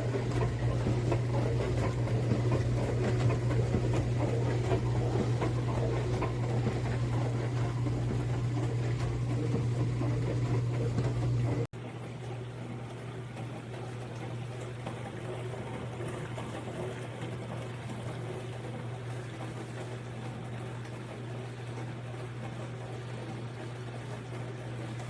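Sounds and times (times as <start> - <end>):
dishwasher running: 0.0 - 25.0.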